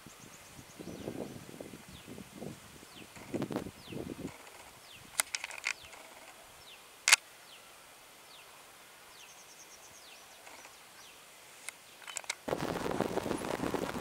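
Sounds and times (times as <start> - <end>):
bird chirping: 0.0 - 2.2, 2.8 - 7.7, 9.1 - 12.4
sharp clicks: 4.2 - 6.4, 11.6 - 12.5.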